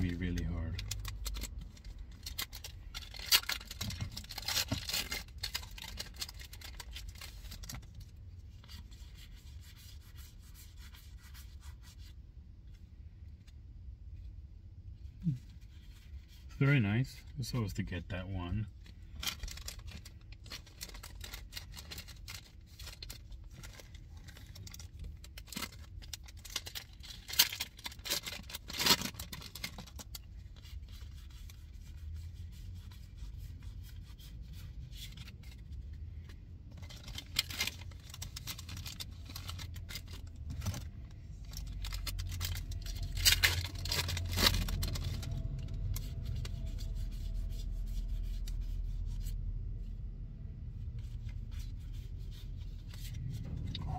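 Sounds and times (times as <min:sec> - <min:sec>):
foil wrappers crinkling and tearing: 0:00.8 - 0:08.1, 0:19.2 - 0:32.0, 0:36.8 - 0:49.2
cards rubbing and sliding: 0:30.4 - 0:35.9, 0:36.9 - 0:49.9, 0:50.7 - 0:53.9.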